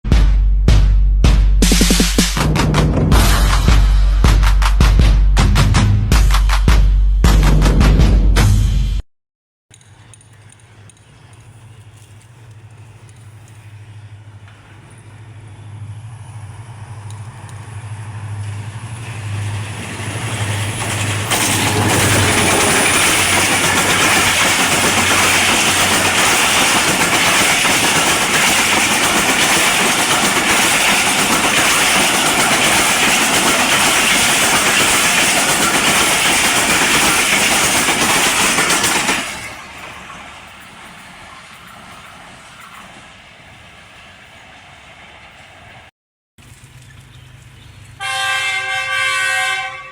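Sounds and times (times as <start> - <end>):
diesel locomotive engine hum: 1.8 - 7.2, 9.7 - 49.9
train wheels rushing on rail: 9.7 - 45.9.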